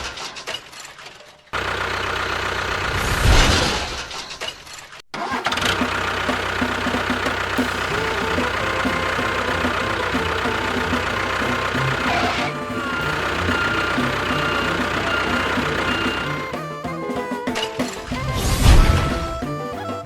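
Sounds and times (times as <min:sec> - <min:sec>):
mechanical engine running: 0:01.6 - 0:04.2, 0:05.4 - 0:17.0
loud clattering burst: 0:01.6 - 0:16.5.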